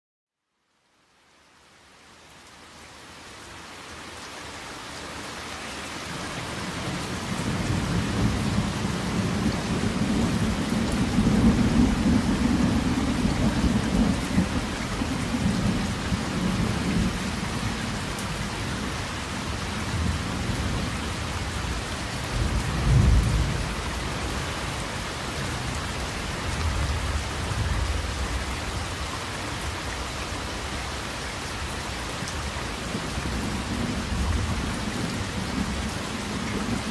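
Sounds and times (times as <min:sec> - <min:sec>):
steady rain: 0:00.4 - 0:36.9
low rumble of thunder: 0:06.8 - 0:18.0, 0:19.8 - 0:24.0
sharp thunderclap: 0:22.4 - 0:23.6.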